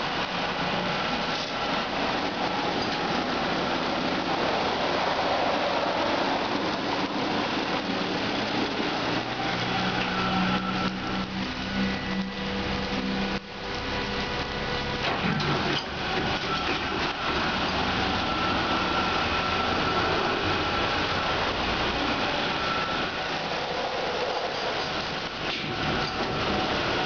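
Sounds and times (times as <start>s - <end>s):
car wash brushes rushing: 0.0s - 27.0s
thin motor whine: 7.1s - 27.0s.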